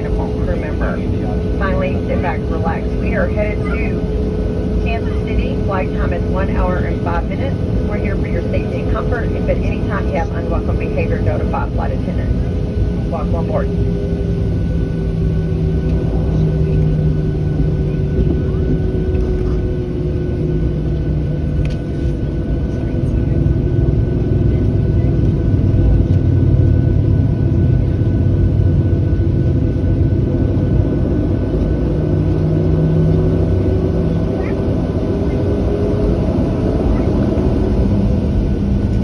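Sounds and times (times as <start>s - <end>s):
airplane cabin engine rumble: 0.0s - 39.0s.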